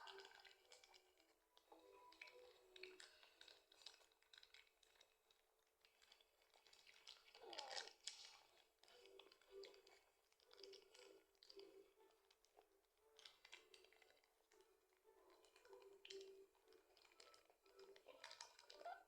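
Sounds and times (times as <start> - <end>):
clicks of handling and eating: 0.0 - 19.0
plastic wrapper crinkling: 15.3 - 19.0.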